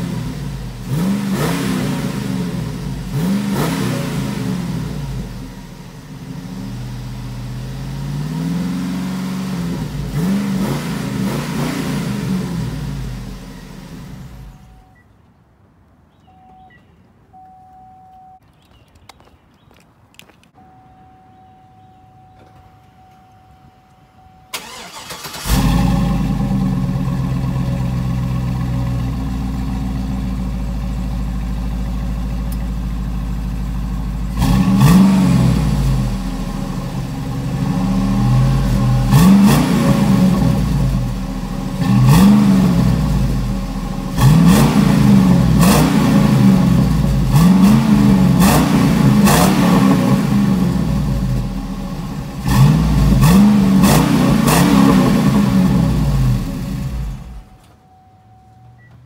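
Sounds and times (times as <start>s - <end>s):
engine revving: 0.0s - 5.6s, 6.3s - 14.5s, 24.6s - 29.3s, 34.3s - 57.5s
engine cranking: 24.5s - 26.0s
engine idling: 24.6s - 34.4s.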